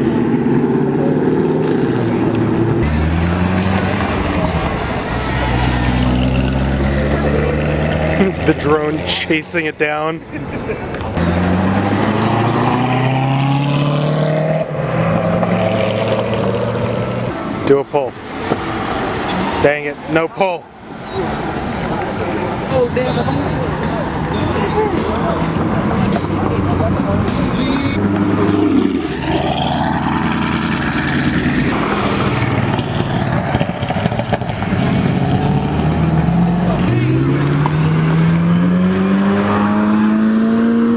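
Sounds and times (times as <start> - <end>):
gear change: 0.0 - 9.5, 20.9 - 40.9
car engine accelerating hard: 0.0 - 9.9, 10.9 - 20.2, 20.9 - 40.9.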